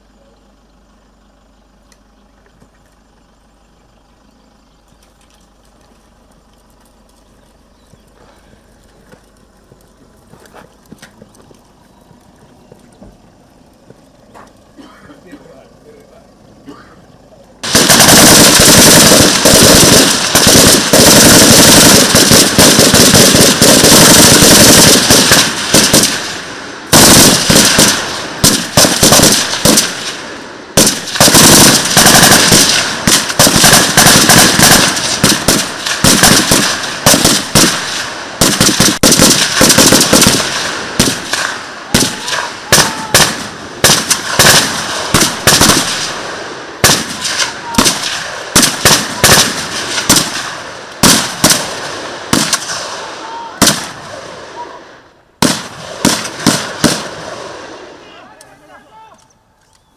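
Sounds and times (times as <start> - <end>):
automatic gunfire: 17.6 - 54.0, 55.4 - 57.6.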